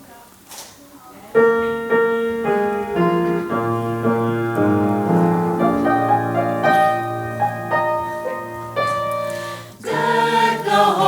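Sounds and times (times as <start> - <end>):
piano melody: 1.3 - 11.0.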